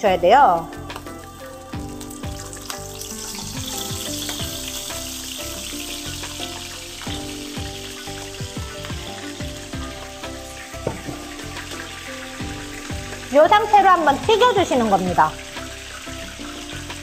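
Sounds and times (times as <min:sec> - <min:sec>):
background music: 0:00.0 - 0:17.0
fish sizzling in oil: 0:00.0 - 0:17.0.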